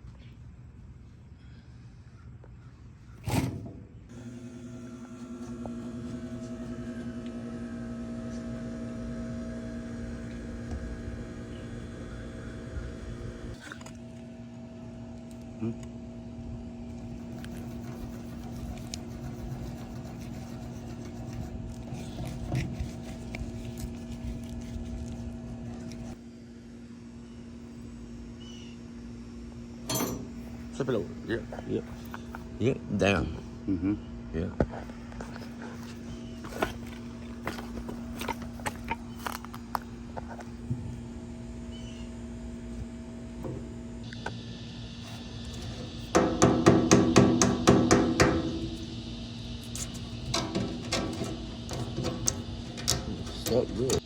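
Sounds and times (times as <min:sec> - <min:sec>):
steady hum: 0:03.9 - 0:54.0
light scraping and rubbing: 0:17.0 - 0:26.2, 0:49.7 - 0:54.0
ringing hammer strikes: 0:29.9 - 0:30.4.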